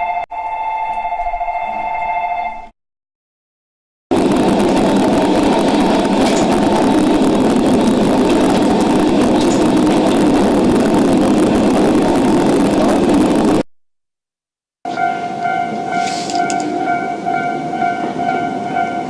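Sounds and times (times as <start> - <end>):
train running: 4.1 - 13.6, 14.9 - 19.0.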